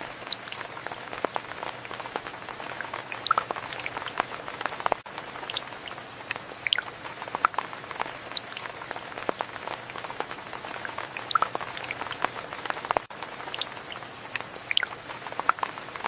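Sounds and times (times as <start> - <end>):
rain pattering: 0.0 - 16.0
drops ticking on surfaces: 0.3 - 5.6, 6.3 - 13.7.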